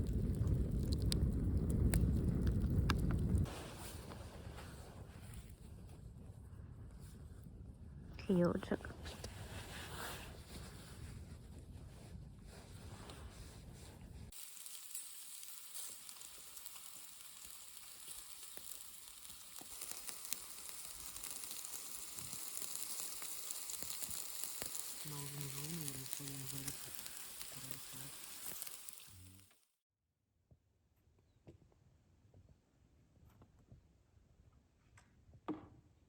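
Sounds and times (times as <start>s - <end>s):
meat sizzling over wood fire: 0.0s - 4.8s, 14.3s - 29.5s.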